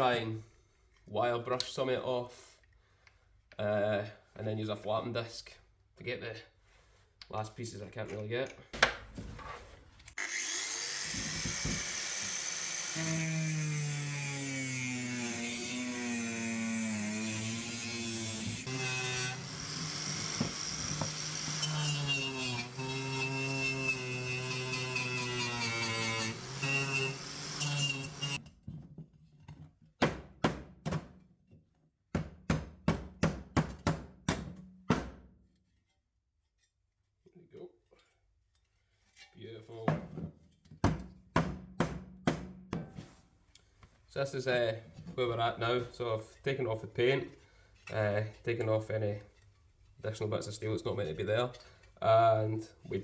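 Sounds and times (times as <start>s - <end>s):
angle grinder on steel: 10.2s - 28.4s.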